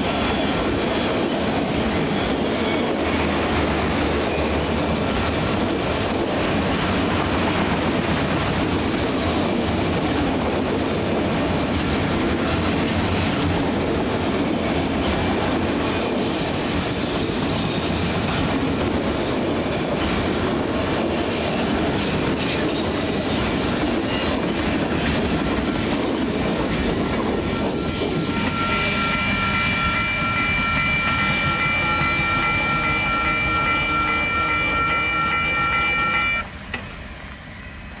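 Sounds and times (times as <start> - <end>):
freight train wheels on rail: 0.0 - 38.0
high-pitched wheel squeal: 28.2 - 36.5.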